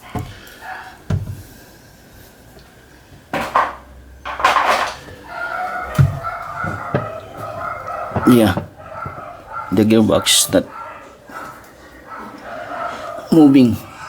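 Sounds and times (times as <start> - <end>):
knocks on machine parts: 3.3 - 5.0
rattly scrape: 4.3 - 5.2.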